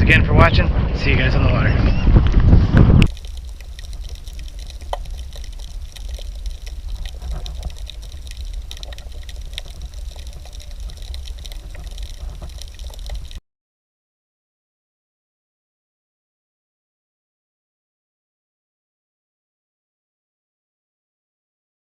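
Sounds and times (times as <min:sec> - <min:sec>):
wind rumble on microphone: 0:00.0 - 0:13.4
water splashing and lapping: 0:03.0 - 0:13.4.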